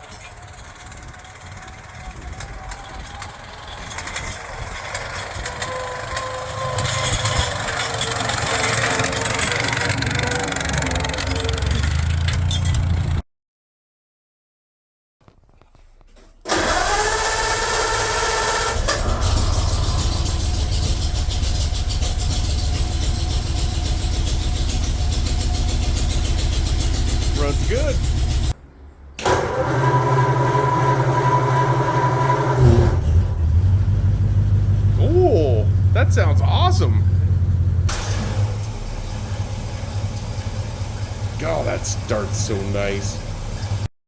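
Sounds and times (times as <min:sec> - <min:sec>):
vehicle engine running: 0:00.0 - 0:13.2, 0:18.8 - 0:28.6, 0:31.5 - 0:43.9.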